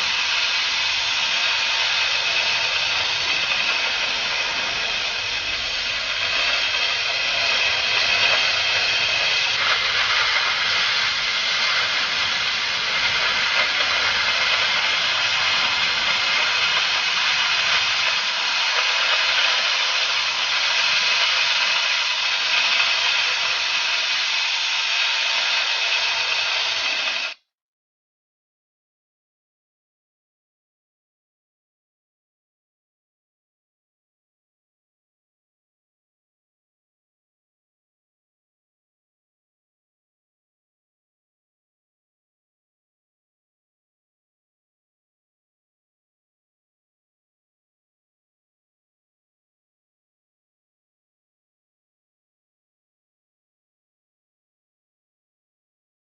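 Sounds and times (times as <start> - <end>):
cutting torch flame hissing: 0.0 - 27.4.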